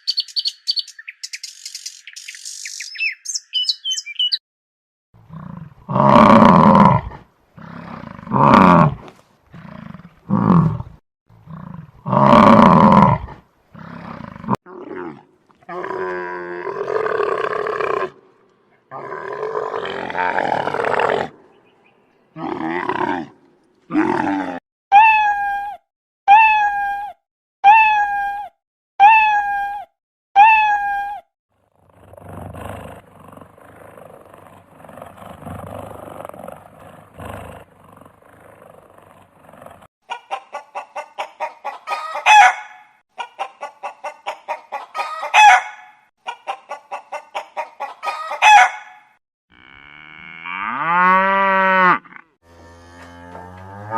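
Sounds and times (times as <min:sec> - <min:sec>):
animal roar-like call: 0:05.3 - 0:18.3, 0:18.9 - 0:21.4, 0:22.3 - 0:24.6, 0:31.7 - 0:39.9.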